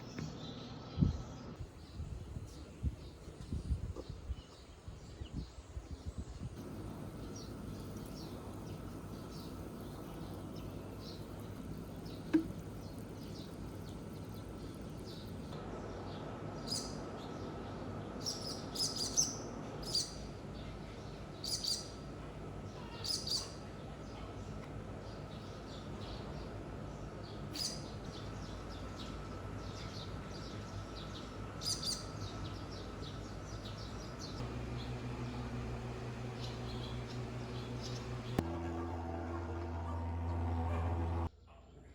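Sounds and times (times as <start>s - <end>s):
birds chirping: 0.0s - 41.3s
steady low hum: 6.2s - 18.8s, 23.7s - 41.3s.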